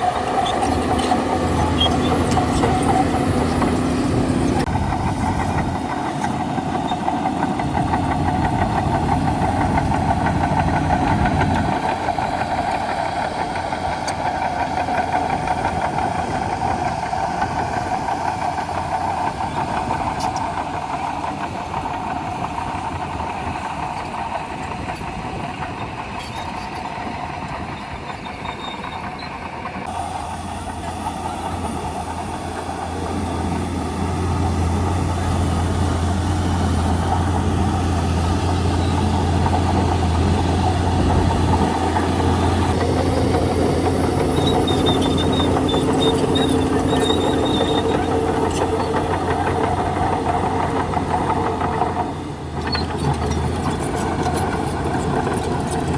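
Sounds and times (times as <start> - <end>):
bulldozer diesel engine running: 0.0 - 55.9
faint high squeak: 0.4 - 2.8, 27.8 - 29.5.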